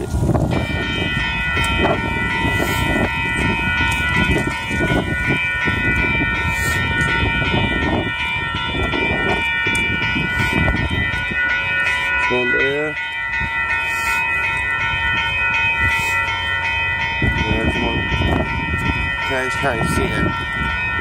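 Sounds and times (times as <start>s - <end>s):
diesel railcar rumble: 0.0s - 21.0s
high ringing tones: 0.0s - 21.0s.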